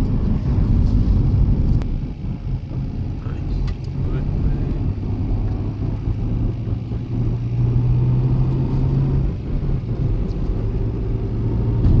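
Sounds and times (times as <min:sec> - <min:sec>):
low engine drone: 0:00.0 - 0:12.0
road rumble: 0:00.0 - 0:12.0.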